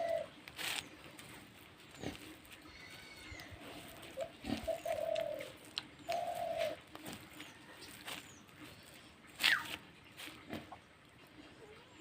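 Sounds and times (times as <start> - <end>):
bird cooing: 0.0 - 0.4, 2.0 - 7.7, 8.8 - 9.8.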